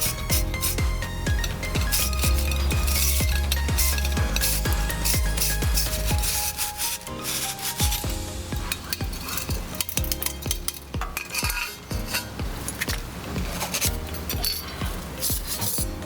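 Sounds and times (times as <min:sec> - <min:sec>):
stiff brush scrubbing metal: 0:00.0 - 0:00.8, 0:01.4 - 0:15.9
metallic clink: 0:13.7 - 0:15.8.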